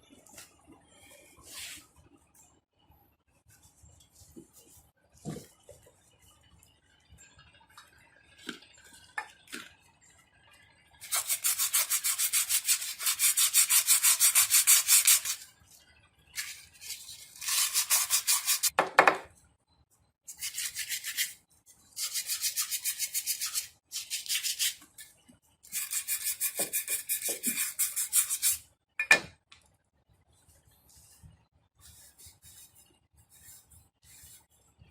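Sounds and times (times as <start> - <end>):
rubbing strokes sanding: 11.0 - 15.4.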